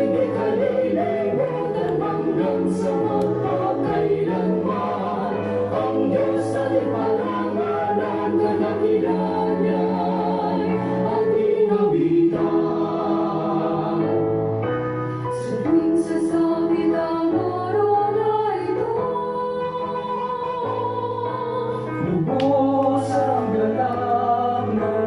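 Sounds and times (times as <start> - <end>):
choir singing praise song: 0.0 - 14.4.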